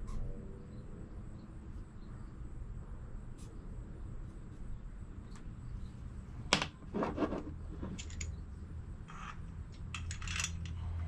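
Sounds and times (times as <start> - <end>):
low steady hum: 0.0 - 11.0
metal tools clicking and clinking: 7.9 - 8.4, 9.1 - 10.8.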